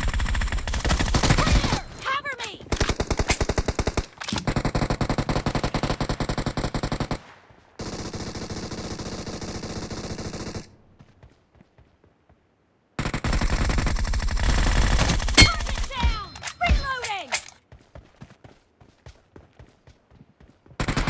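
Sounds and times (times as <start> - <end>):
video game automatic gunfire: 0.0 - 1.9, 2.7 - 10.7, 13.0 - 16.3, 20.8 - 21.0.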